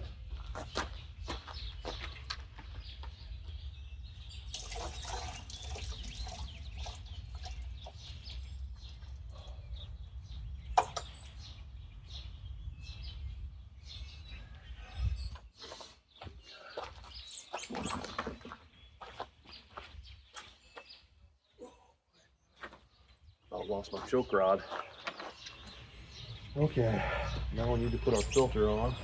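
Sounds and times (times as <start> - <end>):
fuel pouring: 4.5 - 9.7.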